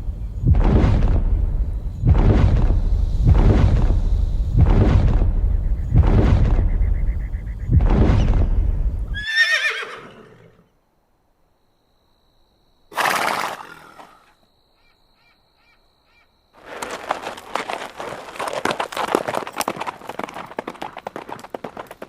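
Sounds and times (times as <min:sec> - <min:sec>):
horse whinnying: 0:09.2 - 0:10.6, 0:12.9 - 0:14.3.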